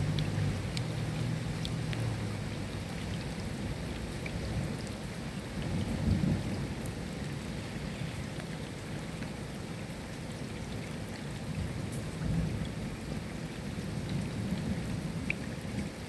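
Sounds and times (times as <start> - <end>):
rain falling: 0.0 - 16.0
low rumbling thunder: 5.6 - 7.4.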